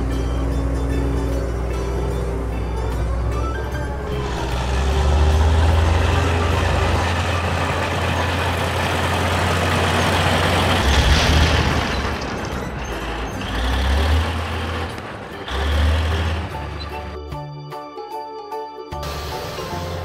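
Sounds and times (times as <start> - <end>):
rock crashing and rumbling: 10.5 - 12.8.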